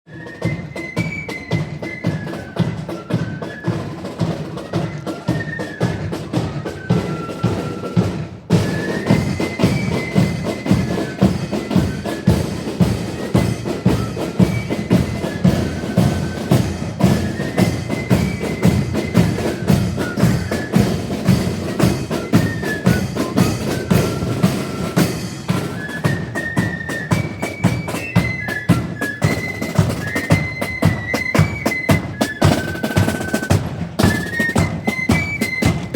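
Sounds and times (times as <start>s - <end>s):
bass and snare drums marching beat: 0.1s - 35.9s
flutes playing high melody: 0.1s - 35.9s.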